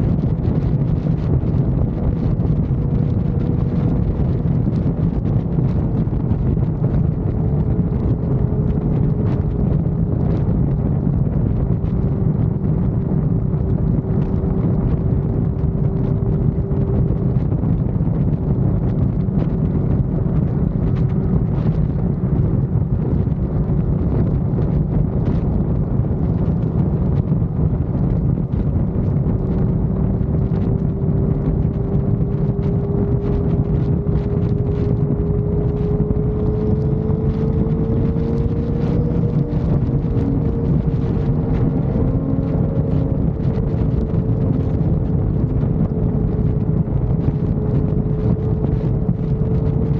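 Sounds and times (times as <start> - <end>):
motorcycle engine cruising: 0.0 - 49.9
wind rush on microphone: 0.0 - 49.9.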